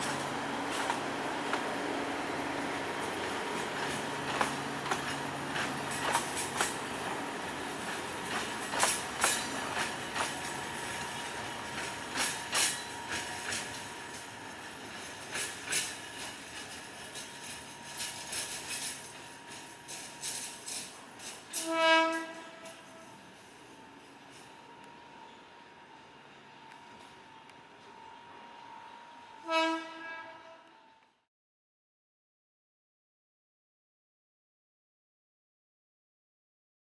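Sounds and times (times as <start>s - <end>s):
wheels clacking over rail joints: 0.0s - 28.5s
train rumbling past: 0.0s - 31.1s
train horn blast: 21.5s - 23.2s, 28.7s - 31.2s.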